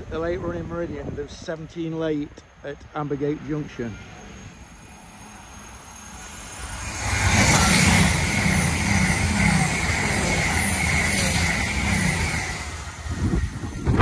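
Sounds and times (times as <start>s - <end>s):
train wheels rushing on rail: 0.4s - 14.0s
diesel engines: 0.7s - 14.0s.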